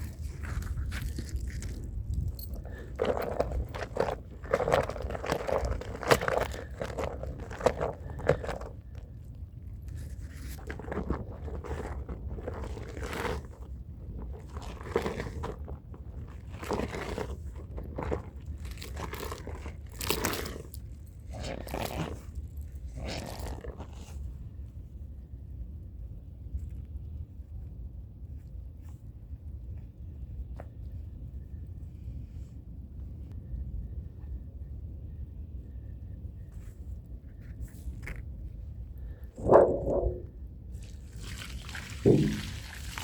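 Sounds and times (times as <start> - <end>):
low hum: 38.5 - 40.8.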